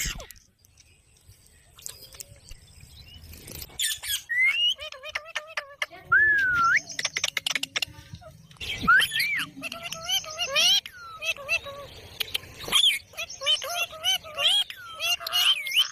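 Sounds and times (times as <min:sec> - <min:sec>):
parrot clicks and chirps: 0:06.7 - 0:11.3, 0:12.1 - 0:13.5.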